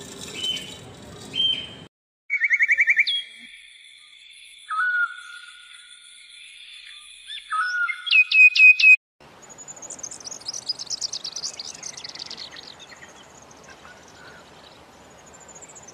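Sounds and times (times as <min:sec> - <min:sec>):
whistled bird calls: 0:00.3 - 0:14.8
high-pitched bird twittering: 0:00.4 - 0:09.0.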